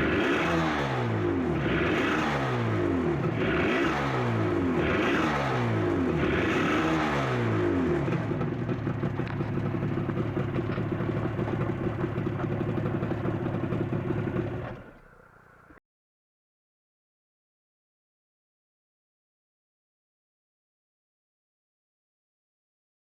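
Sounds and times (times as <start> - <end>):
two-stroke engine revving and idling: 0.0 - 15.8.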